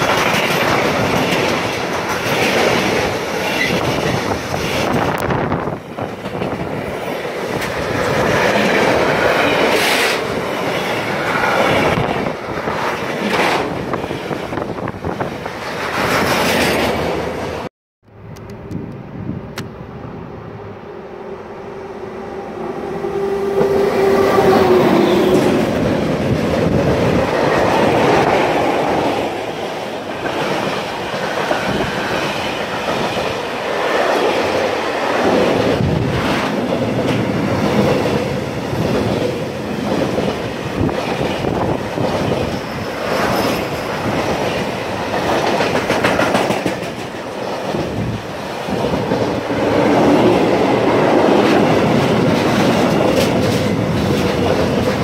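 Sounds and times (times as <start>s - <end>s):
wheels clacking over rail joints: 0.0s - 5.3s, 30.1s - 55.0s
freight locomotive passing: 0.0s - 55.0s.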